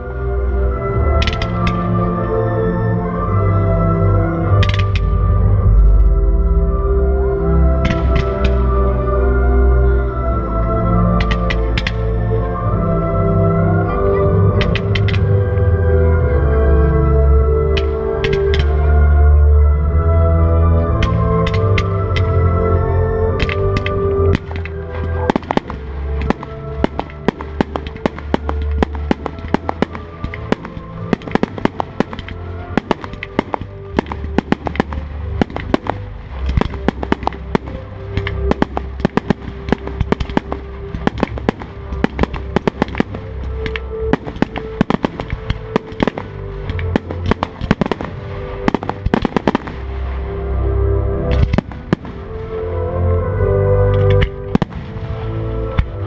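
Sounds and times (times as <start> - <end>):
loud music: 0.0 - 56.0
firework bursts and crackles: 7.8 - 8.8, 23.4 - 50.6, 51.2 - 52.7, 54.2 - 56.0.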